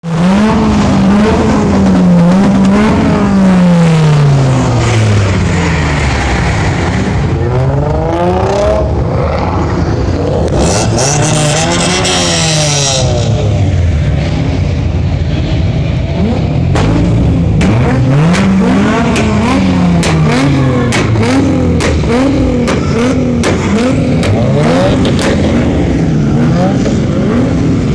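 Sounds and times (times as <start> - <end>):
car engine revving: 0.0 - 27.9.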